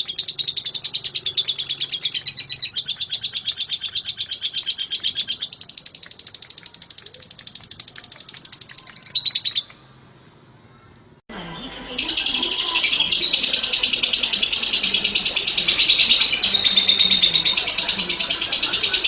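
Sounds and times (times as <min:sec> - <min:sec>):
lovebird chirping: 0:00.0 - 0:09.8, 0:12.0 - 0:19.0.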